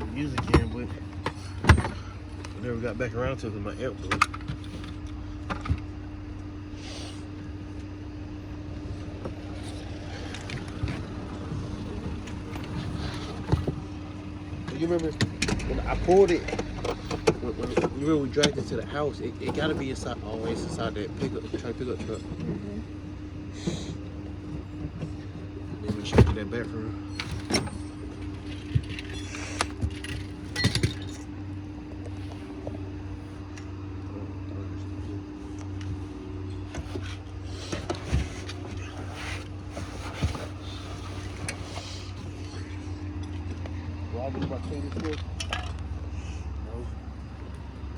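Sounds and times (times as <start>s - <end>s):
vehicle engine idling: 0.0s - 30.5s
low hum: 0.0s - 47.9s
rustling of items handled: 36.6s - 42.7s.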